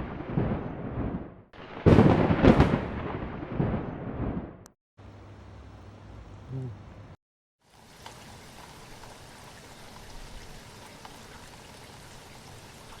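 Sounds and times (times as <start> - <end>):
raindrops ticking on a surface: 7.6 - 13.0
steady rain falling: 7.6 - 13.0.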